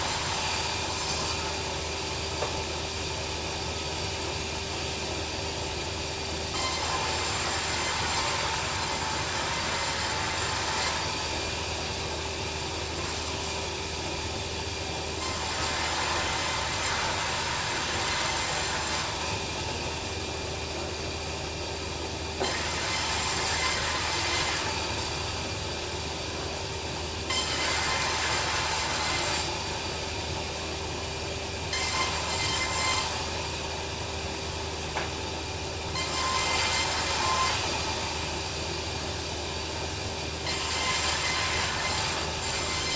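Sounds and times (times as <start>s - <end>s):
sawmill bandsaw humming: 0.0s - 42.9s
saw blade cutting timber: 6.5s - 11.4s, 15.2s - 19.5s, 22.4s - 25.3s, 27.3s - 29.7s, 31.7s - 33.4s, 36.0s - 38.3s, 40.4s - 42.9s.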